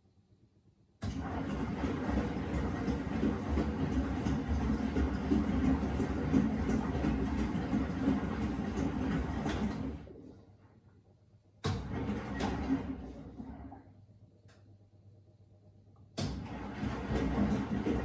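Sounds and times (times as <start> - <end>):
washing machine running: 1.0 - 10.6, 11.5 - 14.1, 16.1 - 18.0.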